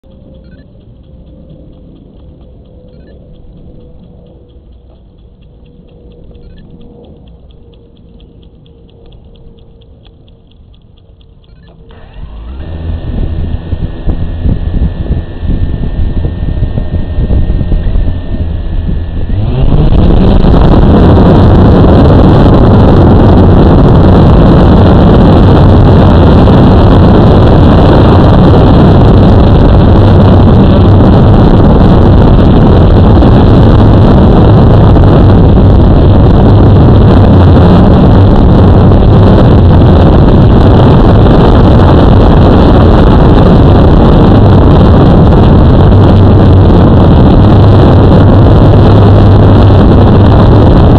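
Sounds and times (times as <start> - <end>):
quadcopter motors buzzing: 0.1 - 50.9.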